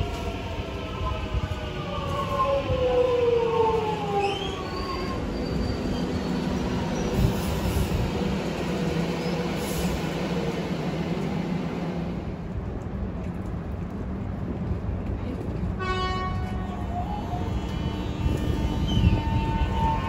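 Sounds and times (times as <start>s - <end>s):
train rumble: 0.0s - 20.0s
short train horn: 15.8s - 20.0s.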